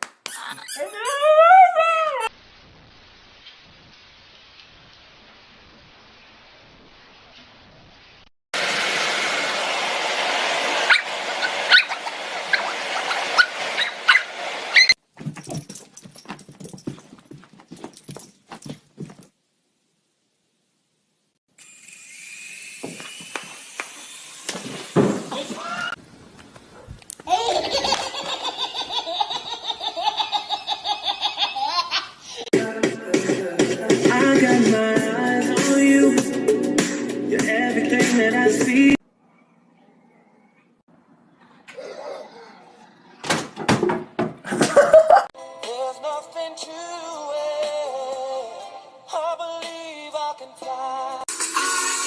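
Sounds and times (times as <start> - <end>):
dog whimpering and yipping: 0.3 - 2.3, 10.9 - 15.0, 41.7 - 42.8
high-pitched laughter: 0.3 - 2.3, 27.2 - 32.5, 44.5 - 45.3.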